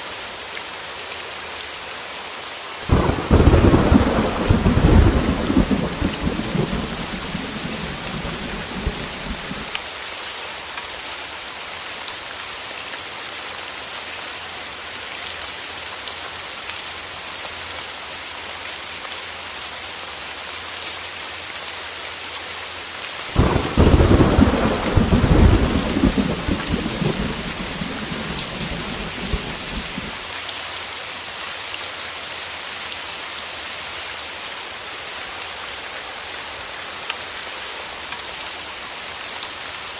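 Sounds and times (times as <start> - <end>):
heavy rain falling: 0.0 - 39.9
thunder rumbling: 2.9 - 9.7, 23.4 - 30.2.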